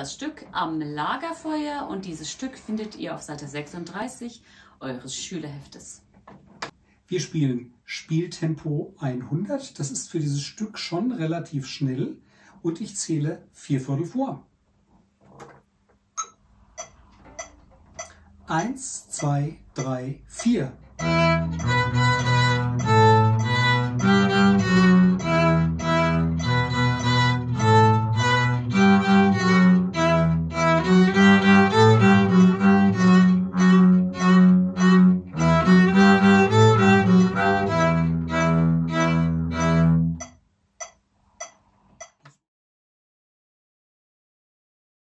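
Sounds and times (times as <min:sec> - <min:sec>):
double bass: 0:16.6 - 0:40.3
violin: 0:20.3 - 0:40.3.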